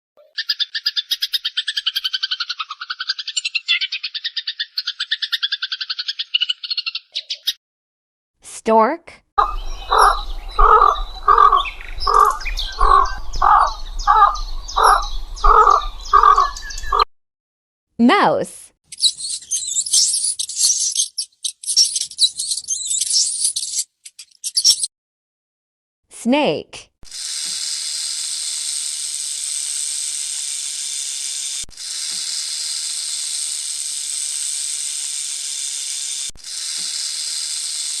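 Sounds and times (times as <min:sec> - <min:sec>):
small birds chirping: 0:00.2 - 0:07.6, 0:09.4 - 0:17.1, 0:18.9 - 0:24.9
stork harsh caw-like calls: 0:09.4 - 0:17.0
snake hissing: 0:27.1 - 0:38.0.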